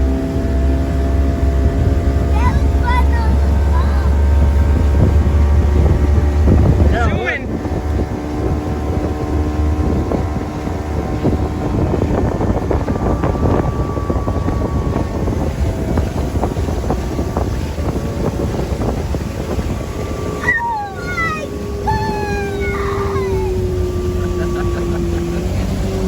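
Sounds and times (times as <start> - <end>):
motorboat engine running: 0.0 - 26.0
wind buffeting microphone: 0.0 - 26.0
falling whine-like calls: 19.6 - 26.0.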